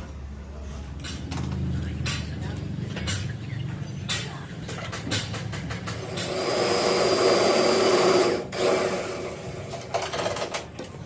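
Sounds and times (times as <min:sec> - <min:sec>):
power tool running: 0:06.0 - 0:09.9.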